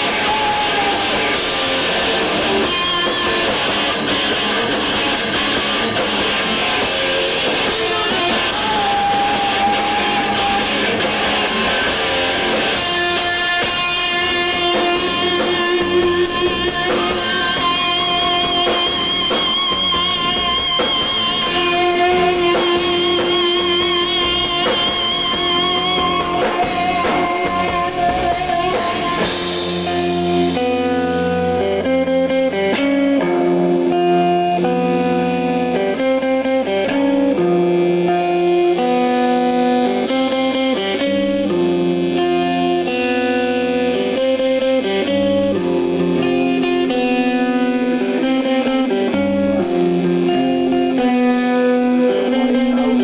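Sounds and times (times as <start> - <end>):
cymbals: 0.0 - 31.9
drums: 0.0 - 53.0
electric guitars: 0.0 - 53.0.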